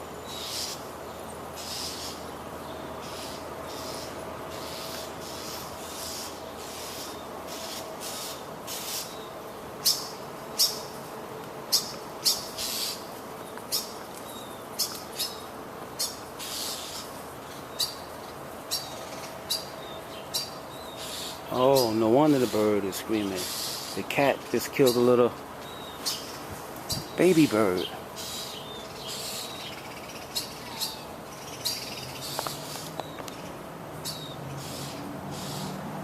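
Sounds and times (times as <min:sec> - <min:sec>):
blackbird alarm calls: 0:00.0 - 0:10.9, 0:11.7 - 0:35.9.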